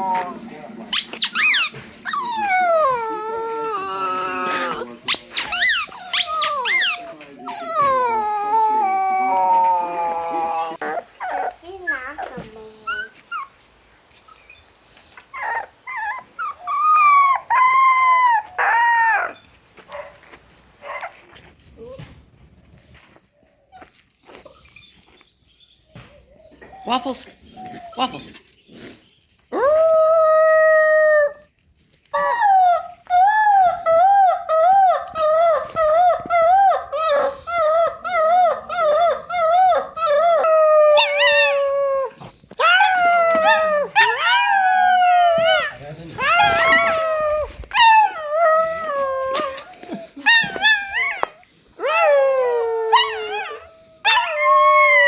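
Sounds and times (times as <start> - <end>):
dog howling: 0.0 - 0.4, 1.2 - 11.6, 32.1 - 55.0
dog yelping: 0.0 - 13.1, 33.5 - 52.1.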